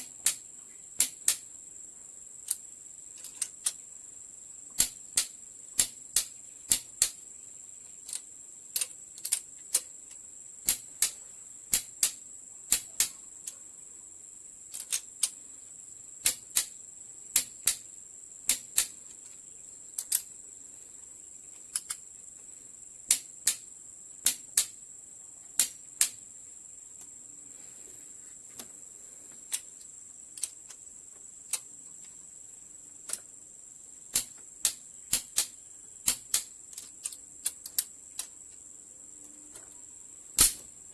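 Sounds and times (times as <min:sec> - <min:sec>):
metallic clicks of hand tools: 0:00.0 - 0:00.4, 0:01.0 - 0:01.4, 0:02.4 - 0:02.6, 0:03.2 - 0:03.8, 0:04.7 - 0:07.2, 0:08.0 - 0:13.6, 0:14.7 - 0:15.4, 0:16.2 - 0:17.8, 0:18.5 - 0:19.4, 0:20.0 - 0:20.3, 0:21.7 - 0:22.0, 0:23.1 - 0:23.6, 0:24.2 - 0:24.8, 0:25.6 - 0:26.2, 0:29.5 - 0:30.8, 0:31.5 - 0:31.7, 0:33.0 - 0:33.3, 0:34.1 - 0:38.6, 0:40.4 - 0:40.7
high-pitched hiss: 0:00.0 - 0:40.9.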